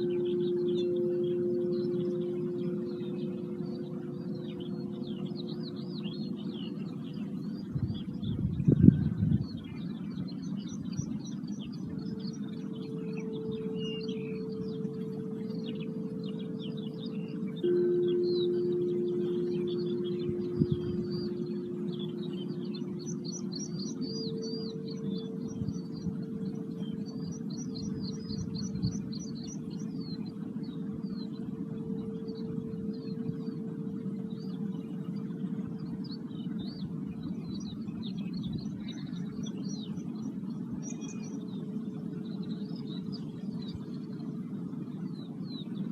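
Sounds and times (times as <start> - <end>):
low steady rumble: 0.0 - 11.1, 11.7 - 35.8
singing bowl tone: 0.0 - 44.2
birds chirping: 0.0 - 45.9
steady low drone: 0.0 - 45.9.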